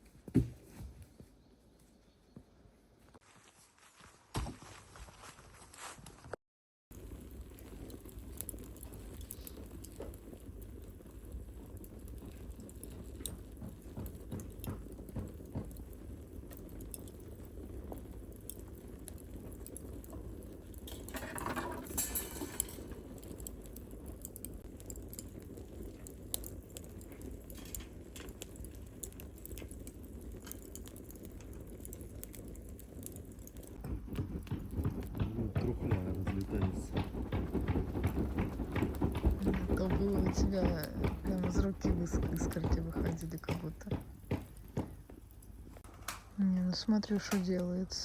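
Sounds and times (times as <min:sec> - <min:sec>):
campfire crackling and popping: 0:06.9 - 0:48.0.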